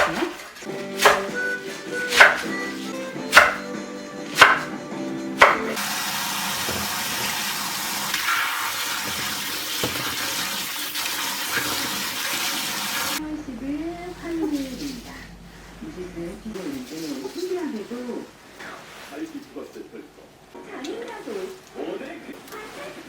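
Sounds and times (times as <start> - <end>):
background music: 0.7 - 5.8
sharp knocks: 3.3 - 3.6, 4.4 - 4.7, 5.4 - 5.7
water running into sink: 5.4 - 13.2.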